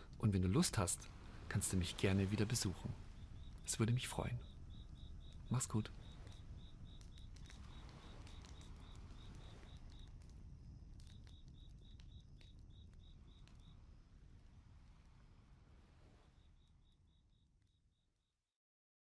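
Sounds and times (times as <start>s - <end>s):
campfire crackles: 0.0s - 17.8s
cricket chirping: 0.0s - 18.3s.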